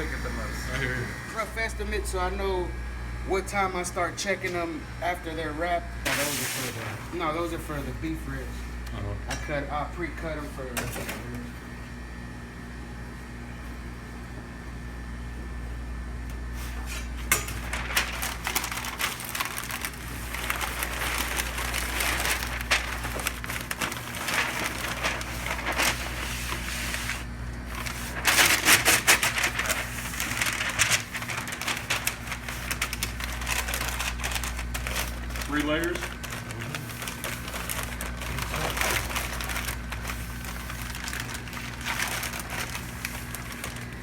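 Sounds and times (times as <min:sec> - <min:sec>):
steady low hum: 0:00.0 - 0:44.0
wrap crinkling: 0:17.5 - 0:44.0.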